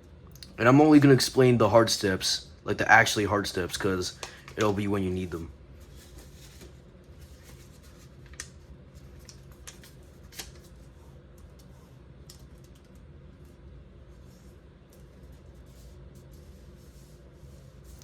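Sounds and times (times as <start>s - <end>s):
steady low hum: 0.0s - 18.0s
paper being folded and creased: 5.8s - 11.7s.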